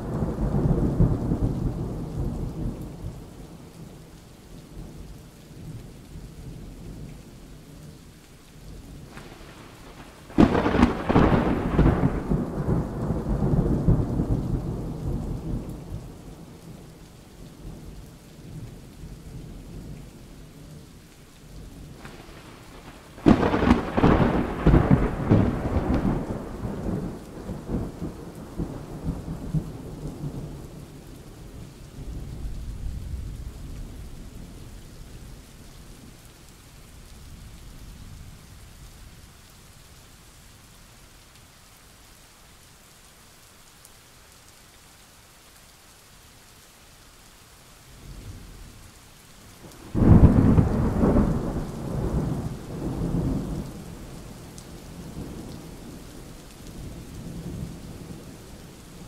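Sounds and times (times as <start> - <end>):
steady rain: 0.0 - 59.0
thunder rumbling: 9.0 - 16.8, 21.9 - 30.8, 49.7 - 59.0
thunderclaps: 9.1 - 16.3, 22.0 - 30.6, 49.8 - 54.1.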